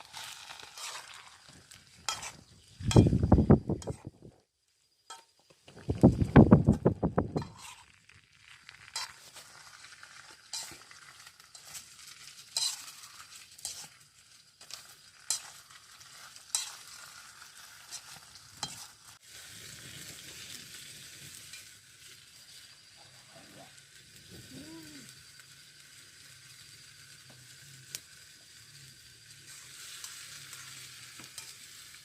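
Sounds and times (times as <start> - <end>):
utensil scraping pan: 0.0 - 4.2, 6.6 - 7.9, 8.8 - 14.0, 14.6 - 19.2
food sizzling in oil: 0.0 - 32.0.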